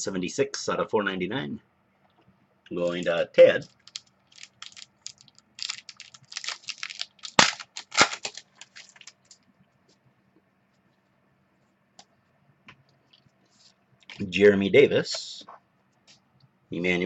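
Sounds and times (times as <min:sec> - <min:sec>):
foil wrapper crinkling: 0:03.6 - 0:09.5.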